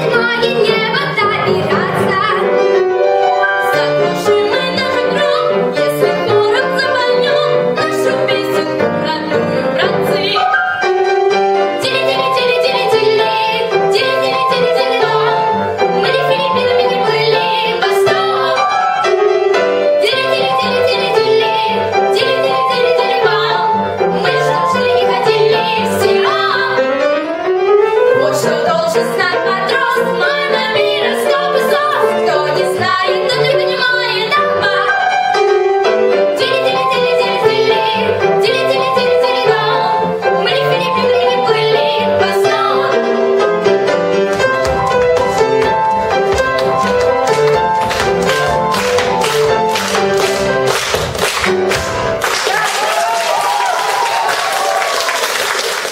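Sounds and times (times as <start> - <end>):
instrumental accompaniment: 0.0 - 52.5
women singing a duet: 3.6 - 10.4, 11.8 - 18.9, 20.0 - 26.8, 28.0 - 35.1, 36.3 - 43.0.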